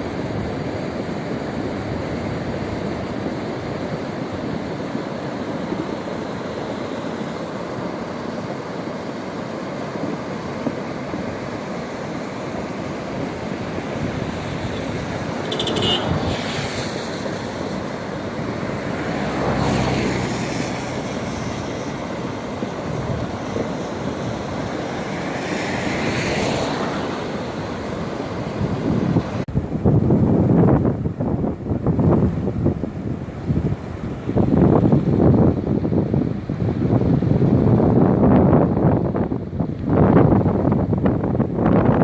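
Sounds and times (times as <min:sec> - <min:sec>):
floodwater rushing: 0:00.0 - 0:29.5
wind on microphone: 0:00.0 - 0:42.0.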